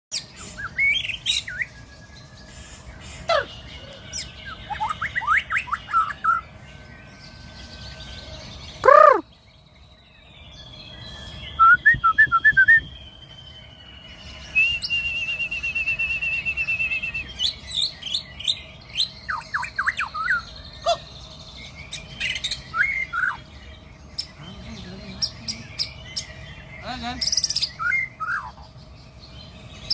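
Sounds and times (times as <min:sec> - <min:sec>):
bird singing whistles and trills: 0:00.1 - 0:29.9
faint steady high tone: 0:03.4 - 0:09.8
loud downward-sweeping bird call: 0:08.7 - 0:09.4.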